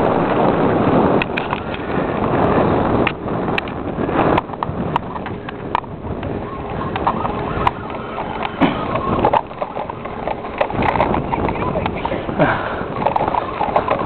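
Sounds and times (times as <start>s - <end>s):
microphone handling and wind noise: 0.0s - 14.0s
sharp clicks and knocks: 1.2s - 1.8s, 3.0s - 12.2s, 13.0s - 14.0s.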